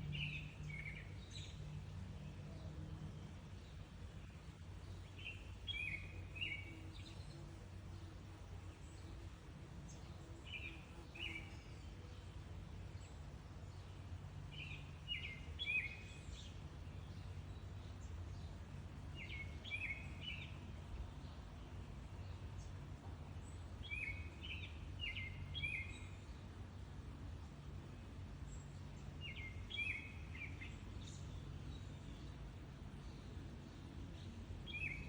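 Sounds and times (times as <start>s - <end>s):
bird chirping: 33.0s - 35.0s.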